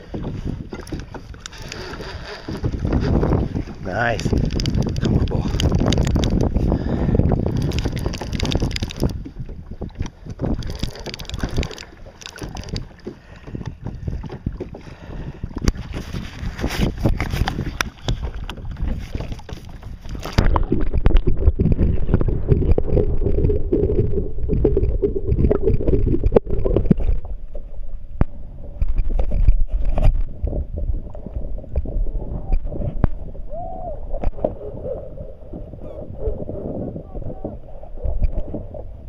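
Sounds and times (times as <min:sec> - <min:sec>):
water sloshing against kayak: 0:00.0 - 0:39.0
wind rumbling on microphone: 0:00.0 - 0:39.0.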